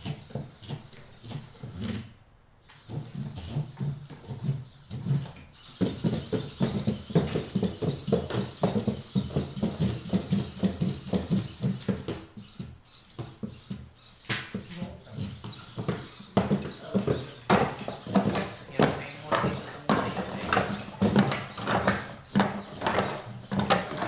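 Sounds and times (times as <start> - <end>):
thin motor hiss: 0.0 - 24.0
robot feet tapping floor: 2.7 - 24.0.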